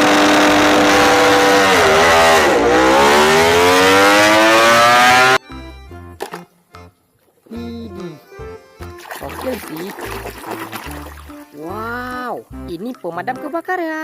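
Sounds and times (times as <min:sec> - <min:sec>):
racing motorcycle engine revving: 0:00.0 - 0:05.4.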